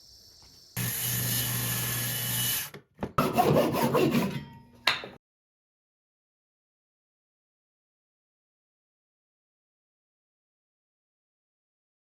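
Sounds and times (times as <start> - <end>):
woodworking tool hissing with hum: 0.0 - 2.7.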